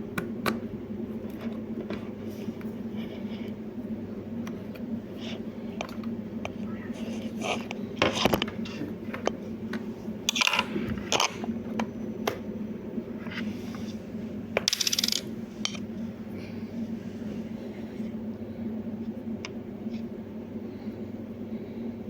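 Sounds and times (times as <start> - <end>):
coin cell dropping on hard surface: 14.7 - 15.3.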